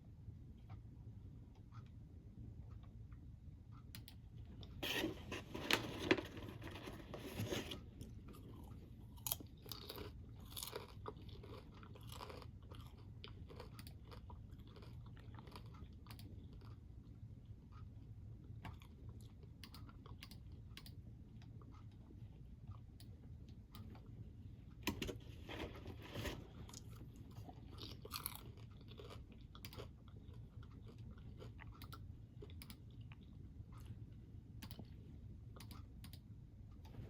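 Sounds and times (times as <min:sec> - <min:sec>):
person chewing crunchy snack: 0:07.6 - 0:17.2, 0:25.3 - 0:33.9.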